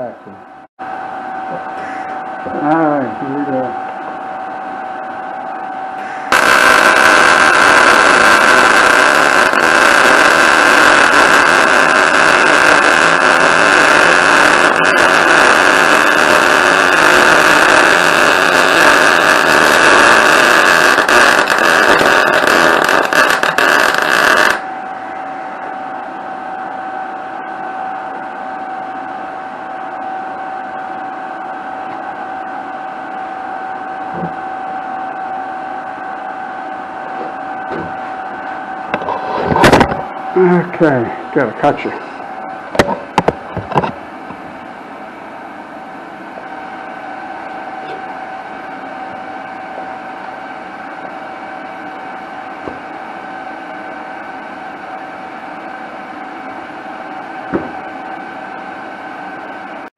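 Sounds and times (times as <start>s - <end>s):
arc welding crackle and sizzle: 6.0s - 24.8s.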